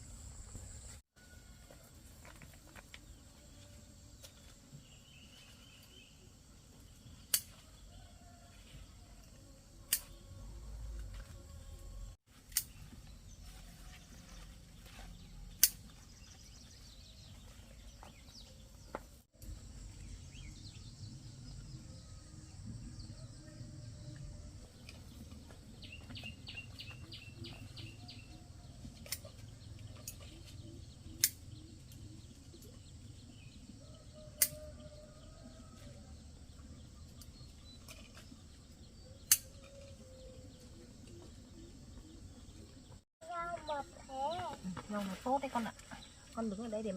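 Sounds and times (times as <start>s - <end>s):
low outdoor background hum: 0.0s - 46.9s
vine stems snapping when cut: 7.3s - 7.6s, 9.9s - 10.2s, 12.5s - 12.8s, 31.2s - 31.4s, 34.4s - 34.6s, 39.3s - 39.7s.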